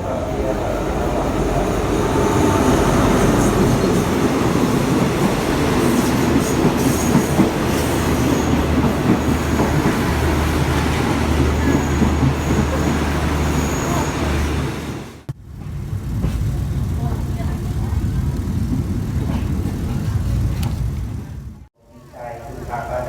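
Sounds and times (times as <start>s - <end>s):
train rumbling on rails: 0.0s - 23.0s
faint high wheel squeals: 11.3s - 14.9s.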